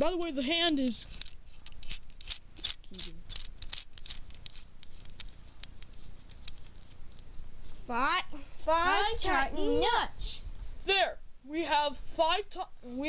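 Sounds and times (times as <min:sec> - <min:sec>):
nut screwed onto bolt: 0:00.7 - 0:07.3.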